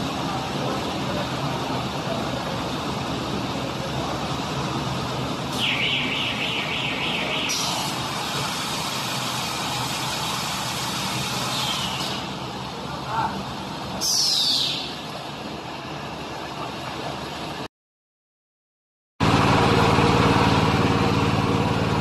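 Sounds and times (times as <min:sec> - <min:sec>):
baler and wrapper machine running: 0:00.0 - 0:14.0.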